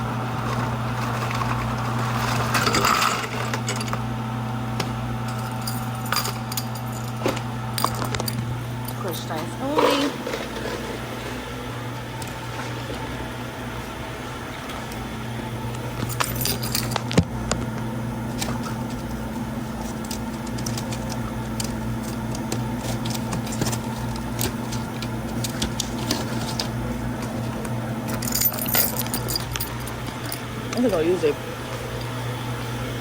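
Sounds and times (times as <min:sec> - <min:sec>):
ice rattling in cup: 0:00.3 - 0:03.7.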